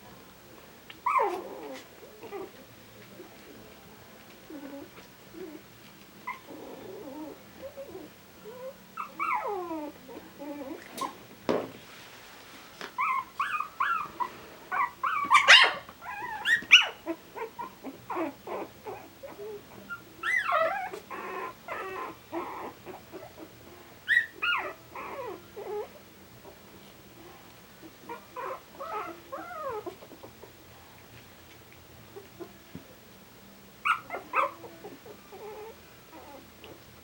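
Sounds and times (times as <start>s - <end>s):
puppies whimpering and yipping: 1.0s - 2.6s, 6.2s - 11.2s, 13.0s - 26.0s, 28.0s - 30.6s, 33.8s - 36.8s.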